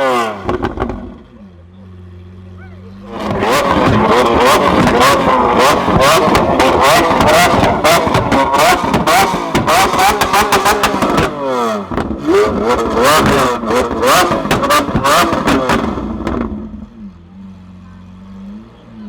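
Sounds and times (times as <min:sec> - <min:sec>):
car engine revving: 0:00.0 - 0:19.0
exhaust pops and bangs: 0:00.4 - 0:01.3, 0:03.1 - 0:16.8.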